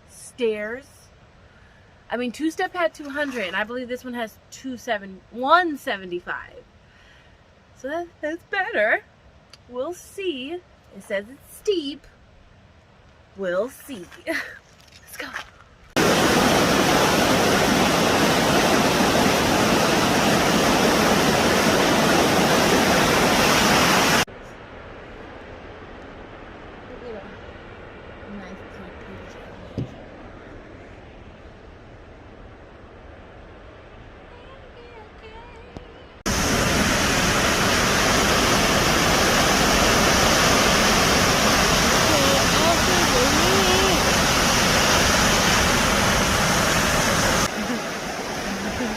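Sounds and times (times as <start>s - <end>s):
waterfall rushing: 16.0s - 24.3s, 36.3s - 48.9s.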